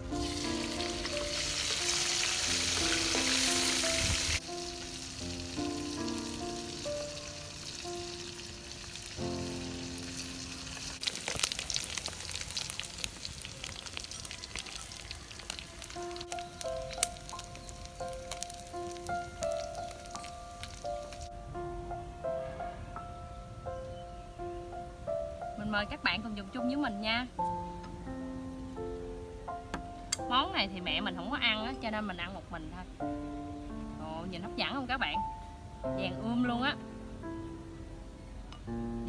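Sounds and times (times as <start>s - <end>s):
soft melodic background music: 0.0s - 11.1s, 14.0s - 39.0s
deep-frying sizzle in oil: 0.0s - 21.3s
oil crackling: 0.0s - 21.4s.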